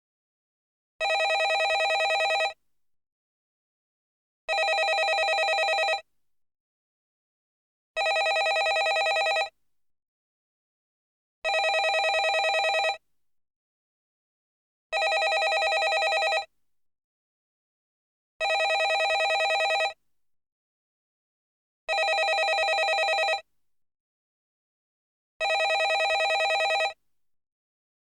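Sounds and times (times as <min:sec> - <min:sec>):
telephone bell ringing: 0:01.0 - 0:02.6, 0:04.5 - 0:06.0, 0:08.0 - 0:09.5, 0:11.5 - 0:13.0, 0:15.0 - 0:16.5, 0:18.4 - 0:20.0, 0:21.9 - 0:23.4, 0:25.4 - 0:27.0.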